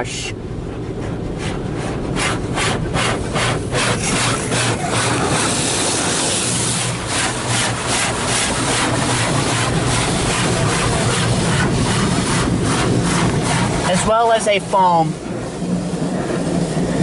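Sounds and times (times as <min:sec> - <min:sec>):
steady low hum: 0:00.0 - 0:17.0
water jets pulsing hiss: 0:03.6 - 0:16.9.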